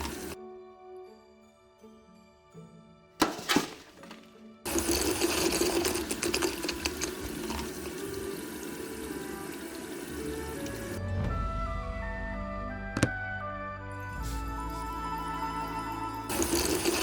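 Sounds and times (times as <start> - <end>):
water rushing: 4.7 - 11.0.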